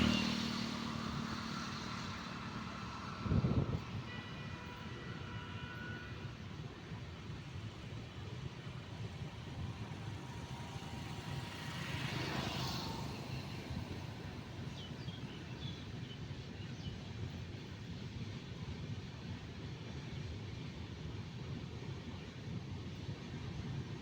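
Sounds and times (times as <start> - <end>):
vehicle passing close: 0.0 - 1.9.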